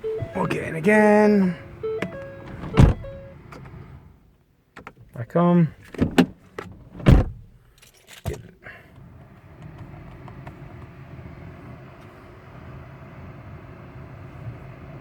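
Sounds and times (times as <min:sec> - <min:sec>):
car engine starting and idling: 0:00.0 - 0:05.2, 0:08.8 - 0:15.0.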